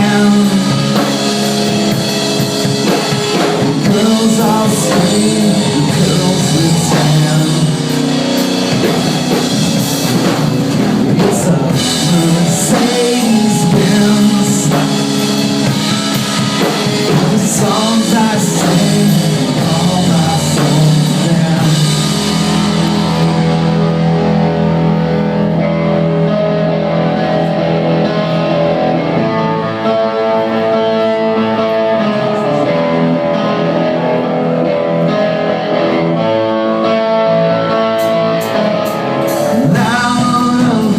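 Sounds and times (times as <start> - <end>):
drum kit: 0.0 - 29.4, 37.8 - 40.9
electric guitars: 0.0 - 40.9
person singing: 0.0 - 40.9.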